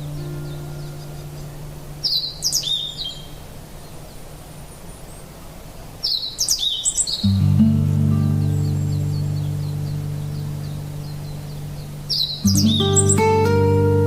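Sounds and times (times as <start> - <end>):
soft ambient music: 0.0 - 2.1, 7.3 - 14.0
songbird singing: 0.0 - 14.0.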